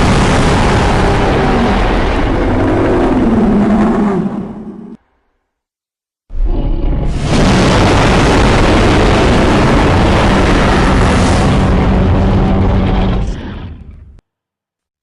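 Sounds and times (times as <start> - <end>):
deep monster roar: 0.0 - 5.0.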